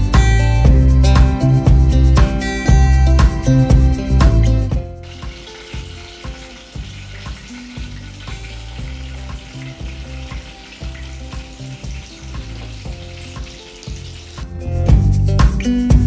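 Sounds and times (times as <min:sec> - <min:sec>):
meat sizzling in oil: 0:04.8 - 0:15.7.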